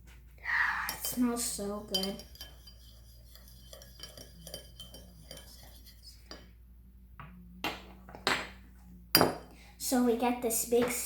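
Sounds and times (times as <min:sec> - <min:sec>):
spoon stirring in a bowl: 0:00.8 - 0:06.6.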